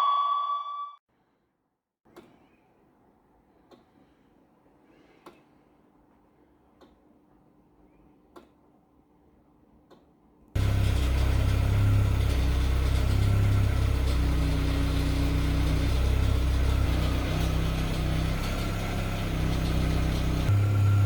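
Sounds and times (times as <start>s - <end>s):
car engine idling: 10.6s - 21.0s.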